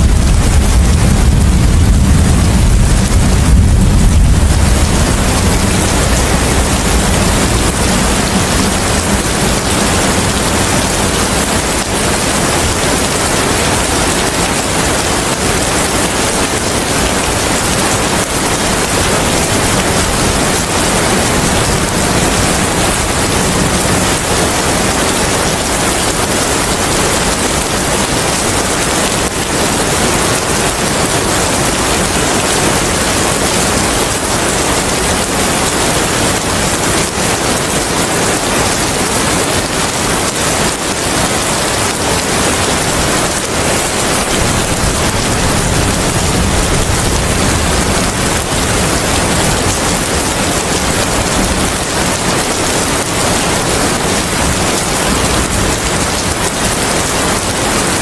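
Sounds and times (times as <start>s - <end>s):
low rumble: 0.0s - 9.8s
heavy rain hissing: 0.0s - 58.0s
wind: 0.0s - 58.0s.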